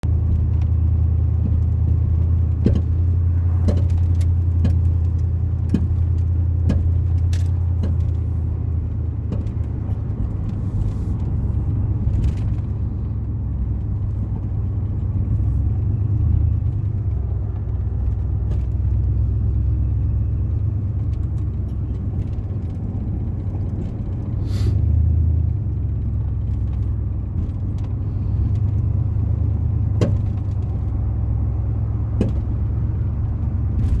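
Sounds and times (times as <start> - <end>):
car driving rumble: 0.0 - 34.0
small knocks and rattles: 0.2 - 8.3, 8.9 - 12.8, 13.7 - 19.4, 25.8 - 31.1, 32.0 - 34.0.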